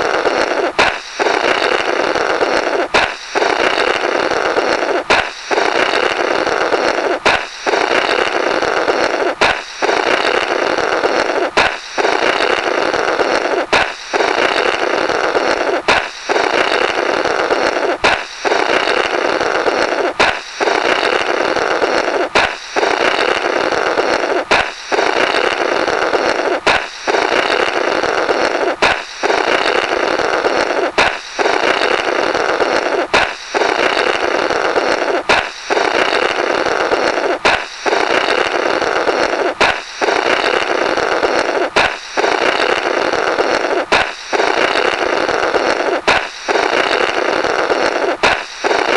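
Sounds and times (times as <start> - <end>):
balloon popping: 0.0 - 48.9
raspy blubbering through rubber: 0.0 - 48.9.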